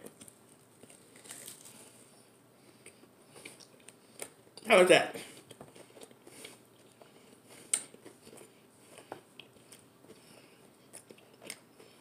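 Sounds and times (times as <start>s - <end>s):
chewing with wet mouth clicks: 5.4s - 12.0s.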